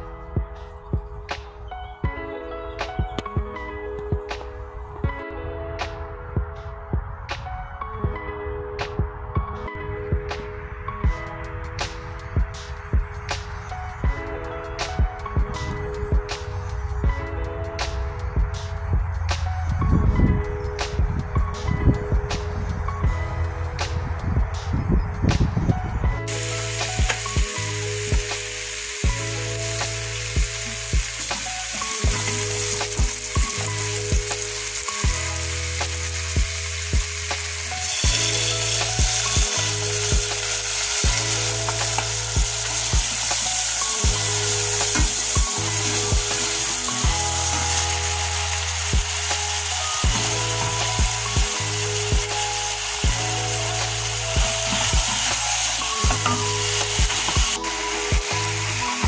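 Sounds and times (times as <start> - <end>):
background music with beat: 0.0 - 59.0
onions and tomatoes sizzling: 26.2 - 59.0.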